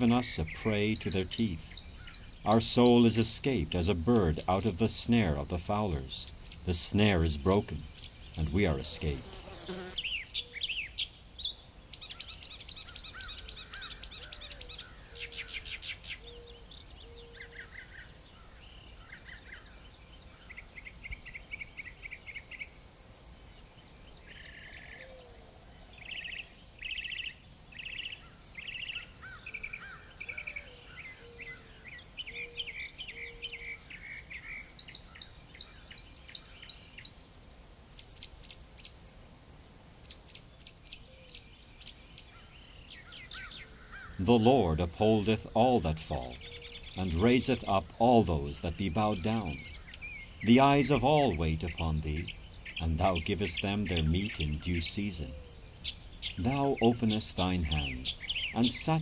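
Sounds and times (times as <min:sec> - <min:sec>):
birds singing and chirping: 0:00.0 - 0:22.9, 0:23.5 - 0:37.2, 0:40.0 - 0:59.0
high-pitched insect trill: 0:00.0 - 0:59.0.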